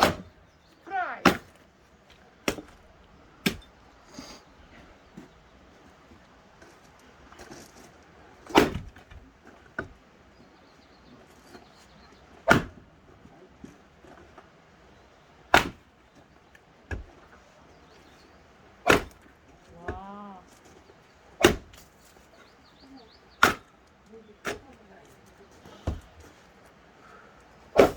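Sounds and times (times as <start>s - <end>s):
axe splitting firewood: 0.0s - 3.8s, 8.4s - 10.0s, 12.4s - 14.4s, 15.5s - 15.9s, 16.8s - 17.4s, 18.6s - 22.2s, 23.4s - 24.8s, 25.6s - 26.4s, 27.6s - 27.9s.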